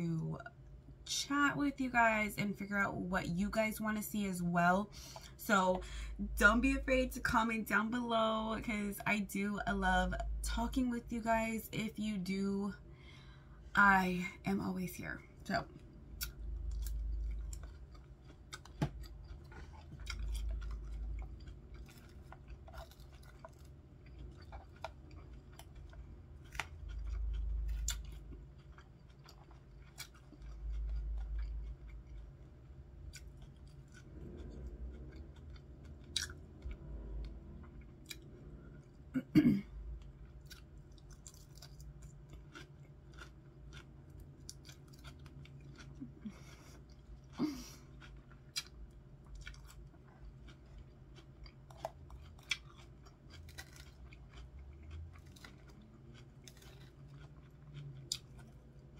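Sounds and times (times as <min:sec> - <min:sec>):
person chewing salad: 0:15.7 - 0:39.1, 0:39.8 - 0:58.9
wet mouth clicks and crunches: 0:26.4 - 0:32.1, 0:40.4 - 0:46.7, 0:51.5 - 0:58.6.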